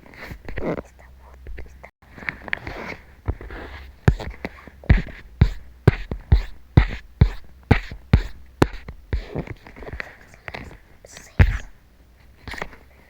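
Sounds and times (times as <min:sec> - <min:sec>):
dull thumps: 0:03.2 - 0:11.8.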